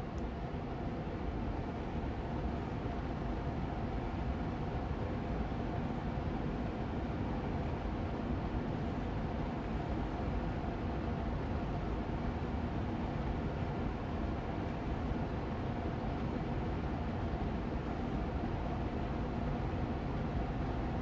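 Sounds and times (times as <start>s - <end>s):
air purifier fan running: 0.0s - 21.0s.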